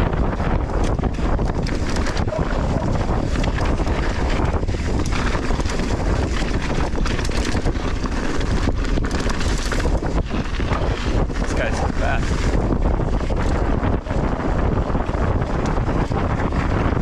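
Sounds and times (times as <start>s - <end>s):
wind rushing over microphone: 0.0s - 17.0s
bike clattering over soil: 0.8s - 13.6s.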